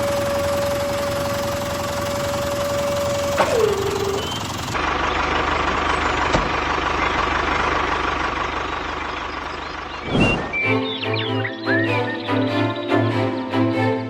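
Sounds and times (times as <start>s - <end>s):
engine-like running noise: 0.0s - 14.0s
short sweep: 10.0s - 10.7s.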